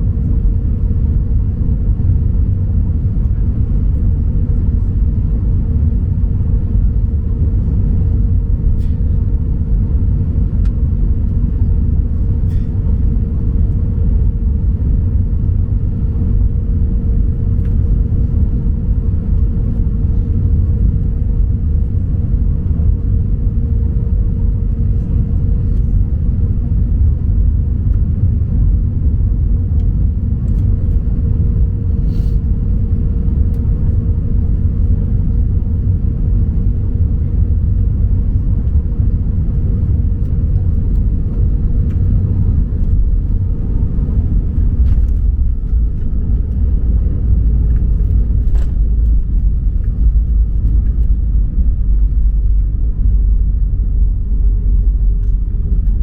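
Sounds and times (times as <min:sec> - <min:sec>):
airplane cabin engine rumble: 0:00.0 - 0:56.0
steady hum: 0:00.0 - 0:56.0.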